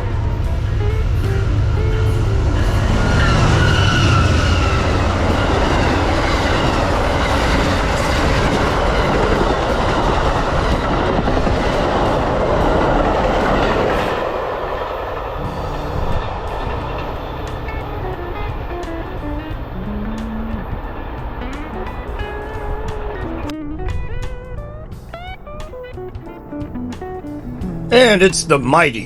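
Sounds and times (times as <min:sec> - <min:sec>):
train rumbling over track: 0:00.0 - 0:23.5.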